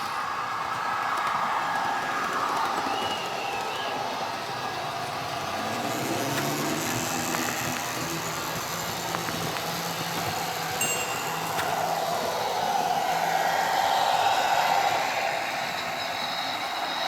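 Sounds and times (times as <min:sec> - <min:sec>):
wheels clicking over rail joints: 0:00.1 - 0:13.7
model train motor hum: 0:03.5 - 0:17.0.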